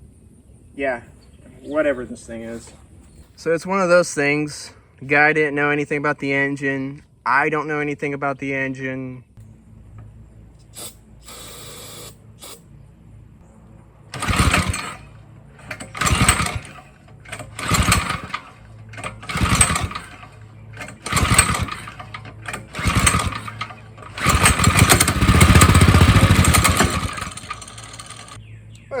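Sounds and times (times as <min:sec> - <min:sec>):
small engine running: 0:10.7 - 0:12.8, 0:13.7 - 0:28.4
small engine pull-start cranking: 0:10.8 - 0:12.6, 0:14.1 - 0:28.4.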